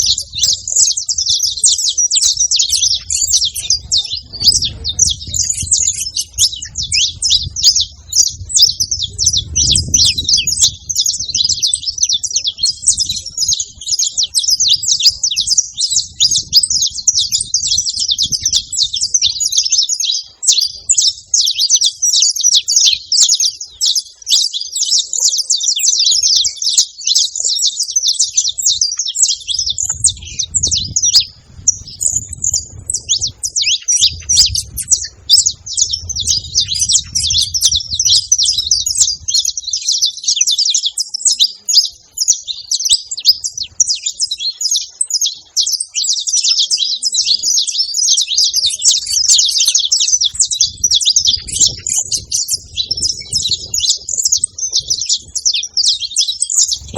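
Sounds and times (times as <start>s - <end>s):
finch chirping and trilling: 0.0s - 56.9s
low rumble: 30.0s - 39.2s.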